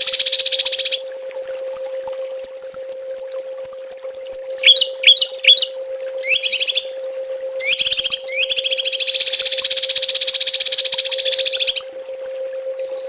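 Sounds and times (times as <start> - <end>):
songbird singing trills: 0.0 - 1.0, 2.4 - 7.0, 7.6 - 11.9, 12.8 - 13.0
steady low tone: 0.0 - 13.0.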